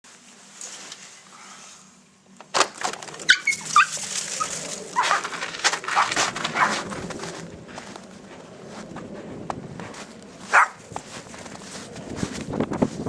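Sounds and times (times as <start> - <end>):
dogs whimpering: 3.2 - 5.3
dogs scuffling in snow: 3.4 - 13.0.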